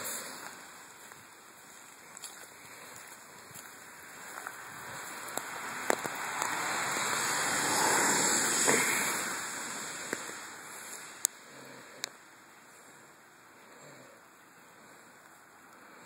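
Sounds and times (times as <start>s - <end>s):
rain on wet pavement: 0.0s - 11.4s.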